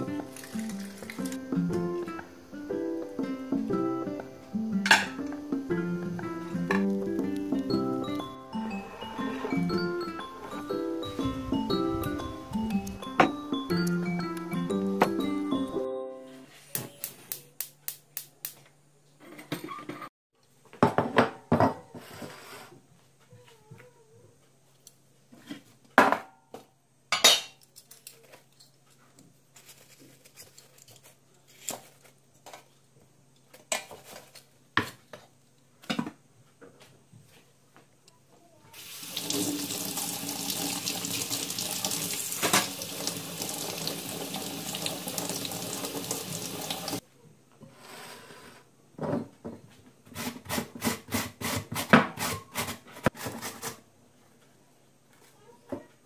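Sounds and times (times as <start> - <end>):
kitchen tap running: 0.3 - 1.3, 38.8 - 47.0
dishes and utensils clinking: 4.8 - 5.4.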